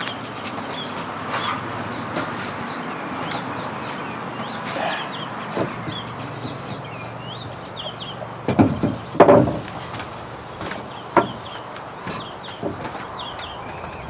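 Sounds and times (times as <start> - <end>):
outdoor background: 0.0 - 14.0
small birds chirping: 0.0 - 14.0
loud knocks: 8.2 - 13.9.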